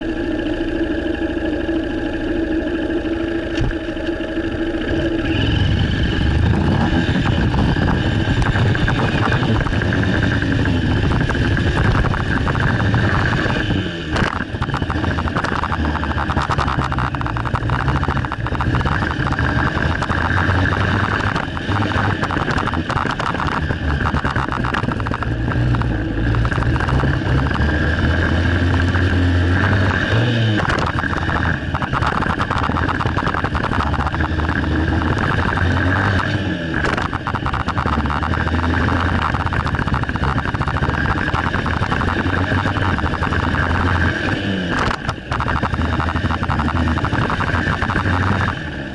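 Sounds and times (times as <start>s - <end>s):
dirt bike engine revving: 3.0s - 48.9s.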